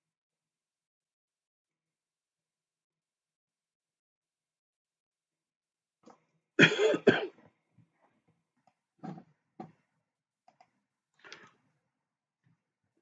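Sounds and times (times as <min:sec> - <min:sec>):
person coughing: 0:06.6 - 0:07.4.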